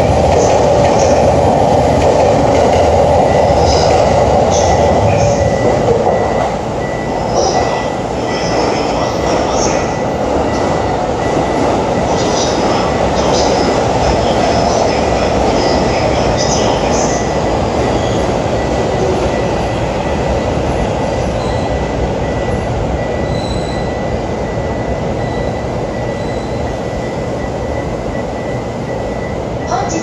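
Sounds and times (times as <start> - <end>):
train rail rumble: 0.0 - 30.0
wheel squeals on rails: 21.4 - 27.0.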